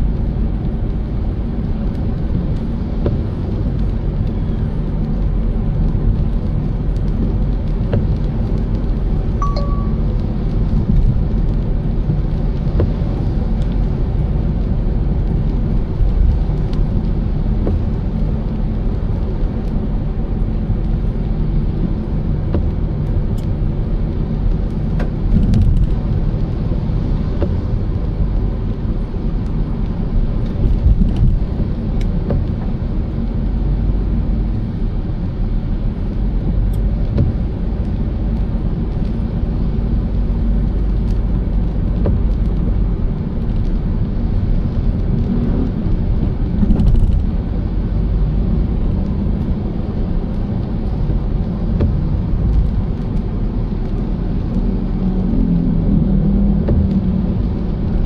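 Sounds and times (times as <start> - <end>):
car driving rumble: 0.0 - 58.0
short beep: 9.4 - 10.1.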